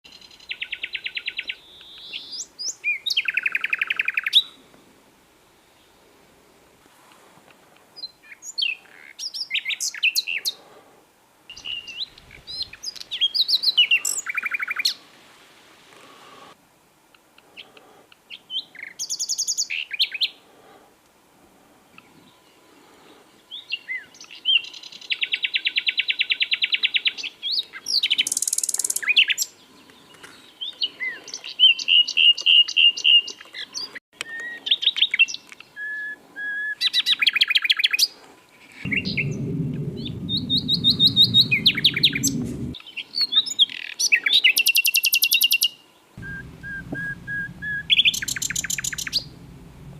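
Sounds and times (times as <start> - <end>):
nightingale singing: 44.9 - 49.9.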